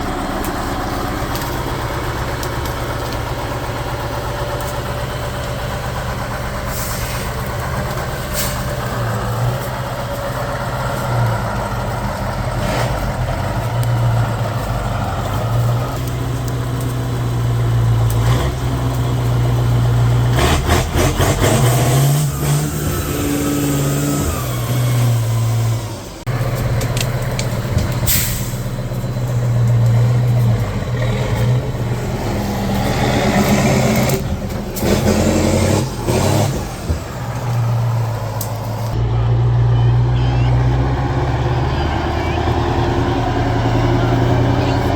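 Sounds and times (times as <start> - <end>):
truck engine revving: 0.0 - 44.9
short hisses of air: 28.1 - 28.6.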